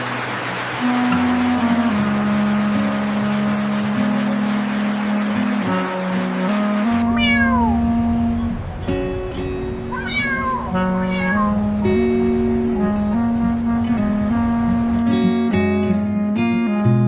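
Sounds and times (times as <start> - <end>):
plucked guitar music: 0.8 - 17.0
cat meowing: 7.0 - 8.1, 9.8 - 11.9.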